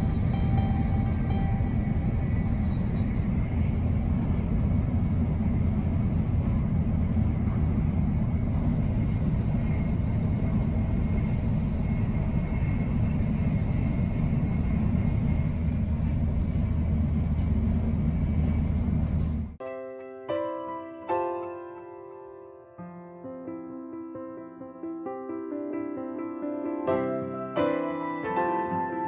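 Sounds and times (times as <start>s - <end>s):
train running low rumble: 0.0s - 19.6s.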